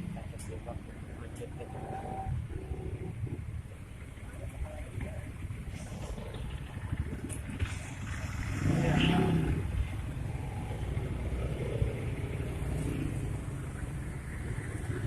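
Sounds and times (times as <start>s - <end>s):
traffic engine rumble: 0.0s - 15.0s
vehicle passing close: 5.6s - 15.0s.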